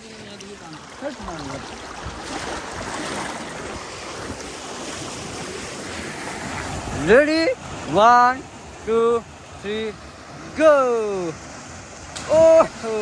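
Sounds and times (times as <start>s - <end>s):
water rushing: 0.0s - 13.0s.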